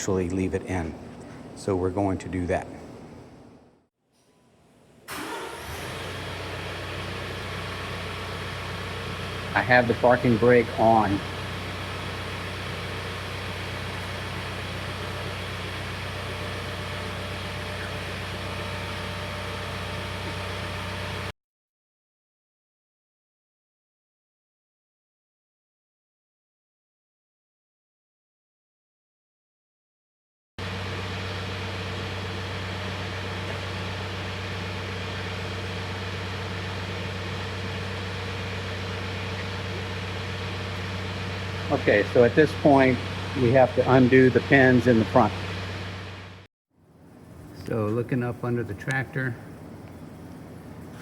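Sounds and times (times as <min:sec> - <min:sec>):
tractor engine idling: 0:05.1 - 0:21.3, 0:30.6 - 0:51.0.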